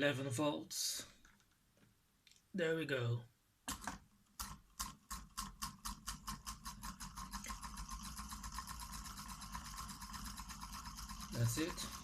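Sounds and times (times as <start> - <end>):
solenoid engine clicking: 3.7 - 12.0.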